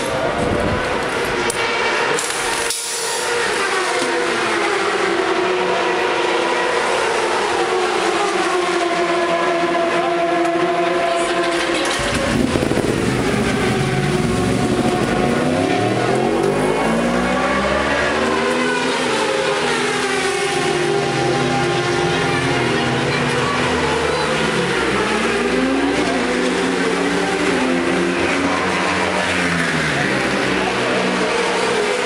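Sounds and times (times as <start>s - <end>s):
racing motorcycle engines: 0.0s - 32.0s
deeper engine note rising: 11.3s - 31.2s.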